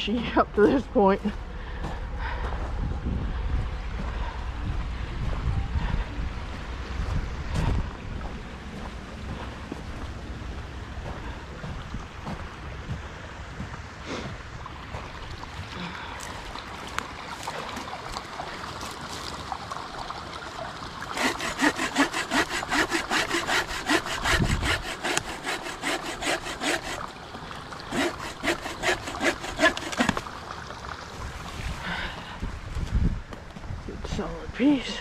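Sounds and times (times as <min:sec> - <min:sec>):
hand saw cutting wood: 0:21.1 - 0:27.2, 0:27.8 - 0:30.3.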